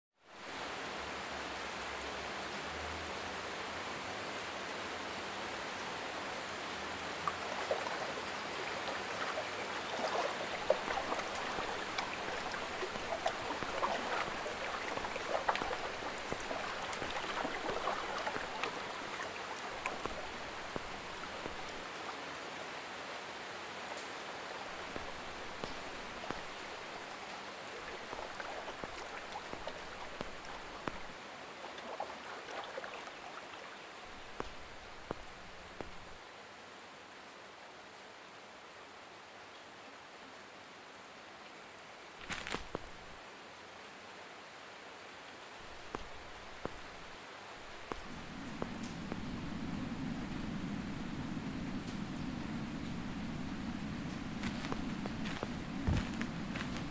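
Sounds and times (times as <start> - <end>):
running water hiss: 0.3 - 36.4, 41.9 - 56.9
water drips: 6.8 - 22.2, 23.8 - 36.2, 42.2 - 43.2, 45.6 - 56.9.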